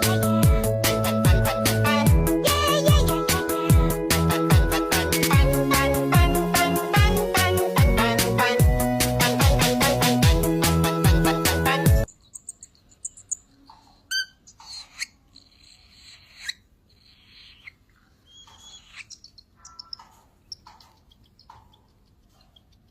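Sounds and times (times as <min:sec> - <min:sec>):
music: 0:00.0 - 0:12.1
parrot chirps and squeaks: 0:12.1 - 0:22.9.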